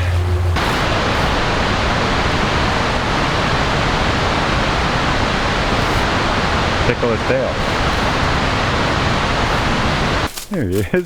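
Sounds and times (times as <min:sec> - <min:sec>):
river water rushing: 0:00.0 - 0:10.3.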